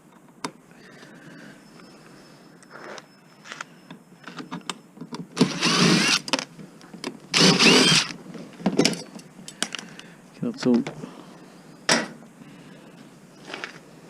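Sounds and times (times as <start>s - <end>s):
power tool motor bursts: 5.4s - 6.3s, 7.3s - 8.2s.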